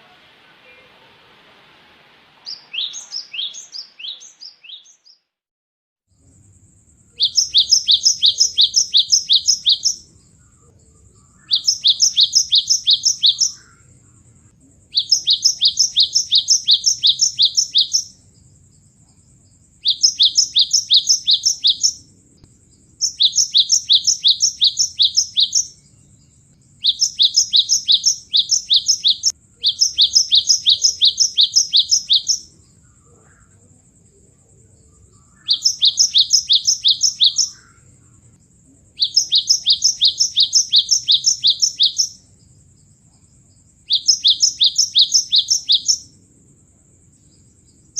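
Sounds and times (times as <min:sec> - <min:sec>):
bird rapid high chirps: 0:02.4 - 0:05.3, 0:07.1 - 0:14.1, 0:14.8 - 0:18.3, 0:19.8 - 0:33.6, 0:35.0 - 0:38.0, 0:39.0 - 0:42.4, 0:43.8 - 0:46.2.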